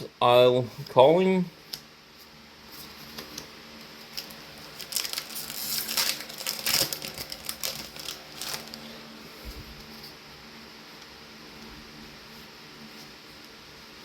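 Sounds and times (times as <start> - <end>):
wrapping crackling and rustling: 1.6 - 10.2.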